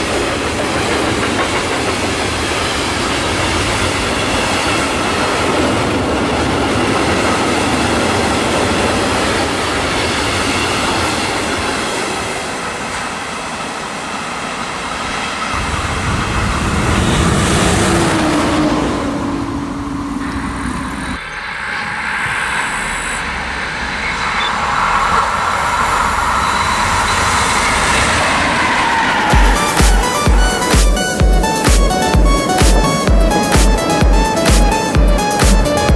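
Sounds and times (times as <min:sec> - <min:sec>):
freight train wagons rattling: 0:00.0 - 0:11.8
diesel locomotive engine drone: 0:00.0 - 0:35.9.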